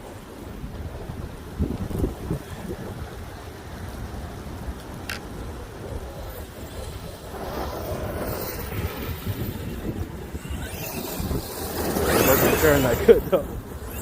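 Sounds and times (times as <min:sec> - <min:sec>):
wind buffeting microphone: 0:00.0 - 0:14.0
electric motor whining: 0:07.3 - 0:14.0.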